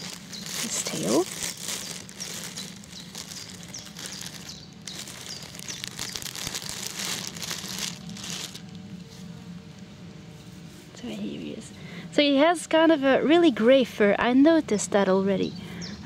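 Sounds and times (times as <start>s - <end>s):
packaging crinkling: 0.0s - 8.9s
low steady hum: 0.0s - 16.0s.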